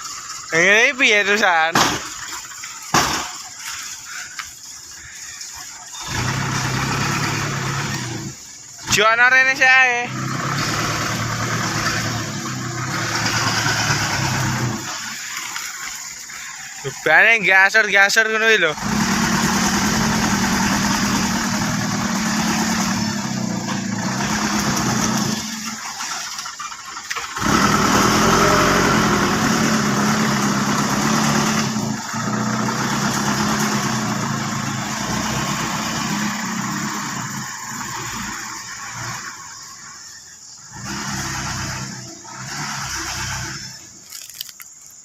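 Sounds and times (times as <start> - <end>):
truck engine running hard: 0.0 - 17.3, 18.0 - 44.1
tyres slipping: 43.9 - 45.0.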